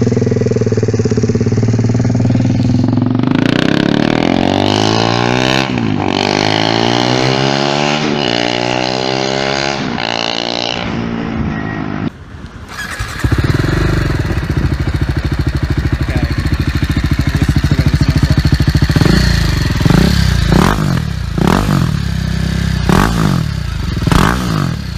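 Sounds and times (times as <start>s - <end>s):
motorcycle engine idling: 0.0s - 4.0s, 12.7s - 24.2s
motorcycle engine revving: 0.0s - 12.1s, 12.7s - 24.9s.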